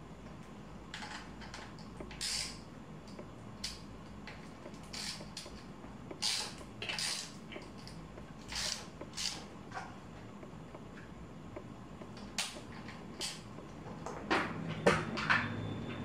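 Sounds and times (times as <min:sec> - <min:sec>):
bicycle parts creaking and scraping: 0:00.9 - 0:02.6, 0:04.3 - 0:10.0.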